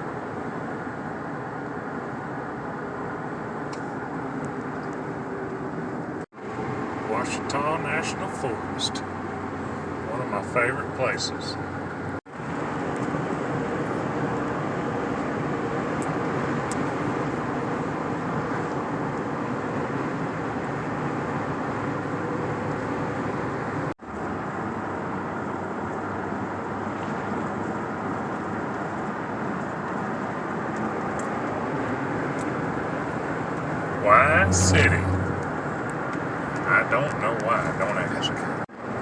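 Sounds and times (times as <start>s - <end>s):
car road and engine noise: 0.0s - 39.0s.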